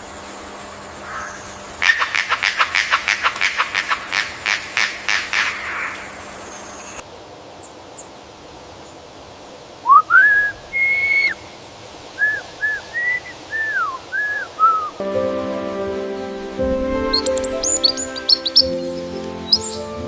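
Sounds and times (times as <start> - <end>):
bird whistling clear notes: 12.2 - 15.0, 16.8 - 19.8.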